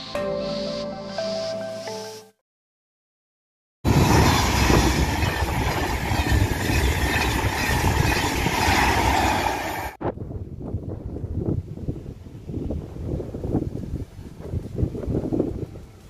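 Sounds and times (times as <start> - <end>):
passenger train passing: 3.9 - 10.0.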